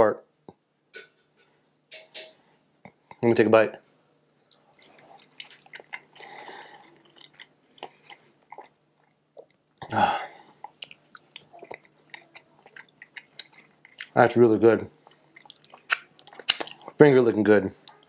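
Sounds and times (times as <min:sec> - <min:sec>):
man chewing with wet smacks: 0:04.5 - 0:09.9, 0:10.5 - 0:14.2, 0:15.0 - 0:17.0
man's appreciative hum: 0:09.8 - 0:10.4.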